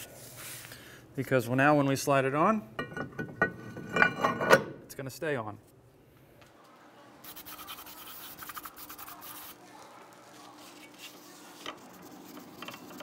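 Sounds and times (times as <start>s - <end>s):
metal scraping and rubbing: 2.8s - 4.7s, 10.7s - 13.0s.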